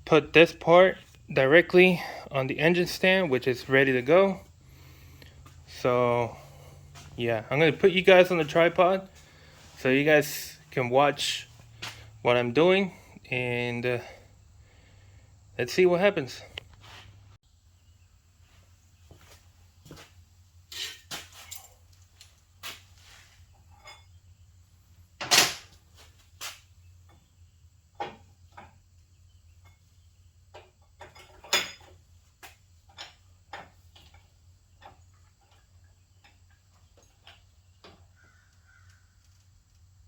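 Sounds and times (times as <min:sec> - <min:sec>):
metal tools clanking: 0:20.7 - 0:22.4, 0:23.5 - 0:24.2, 0:30.6 - 0:32.1, 0:32.8 - 0:38.0.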